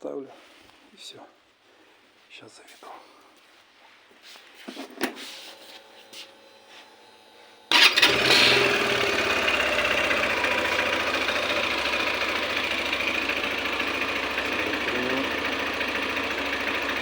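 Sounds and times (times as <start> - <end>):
motorcycle engine starting and idling: 6.9 - 17.0.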